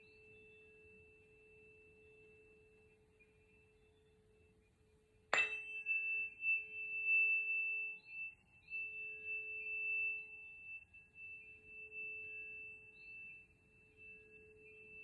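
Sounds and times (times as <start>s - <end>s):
tuning fork ringing: 5.3s - 15.0s.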